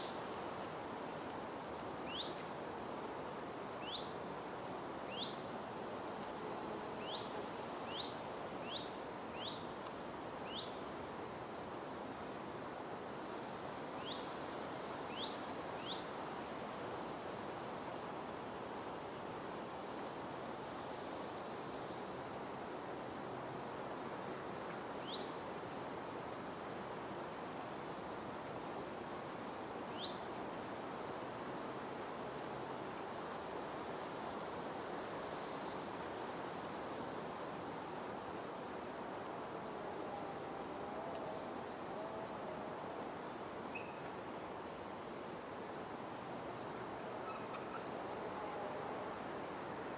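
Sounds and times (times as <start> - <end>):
steady background hiss: 0.0 - 49.9
songbird singing with trill: 29.9 - 31.6, 35.2 - 36.6, 38.5 - 40.7, 43.7 - 44.1, 45.9 - 48.6.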